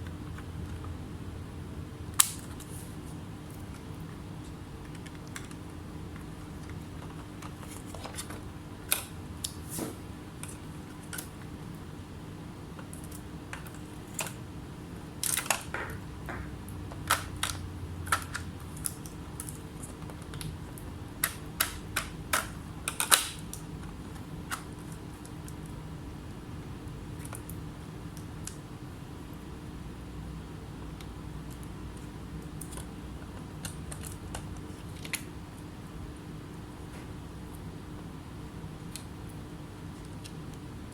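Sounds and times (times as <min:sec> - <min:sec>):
low electrical hum: 0:00.0 - 0:40.9.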